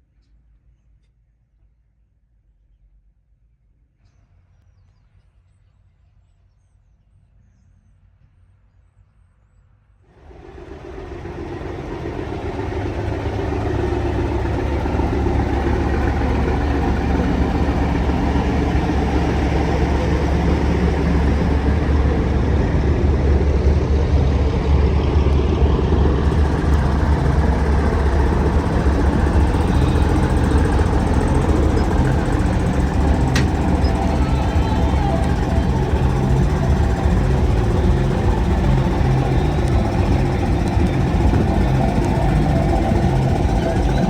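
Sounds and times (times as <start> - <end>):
truck diesel engine running: 10.2 - 44.0.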